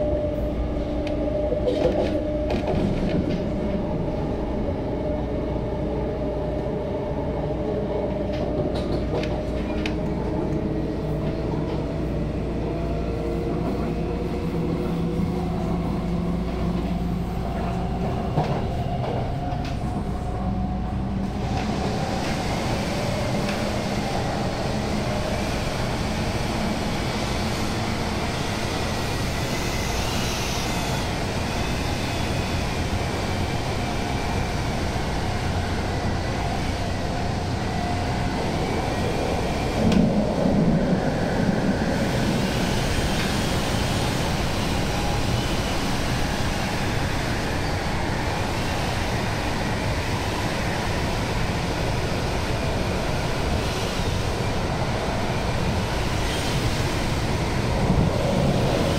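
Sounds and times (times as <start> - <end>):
train cabin rumble: 0.0 - 25.2, 35.0 - 44.3.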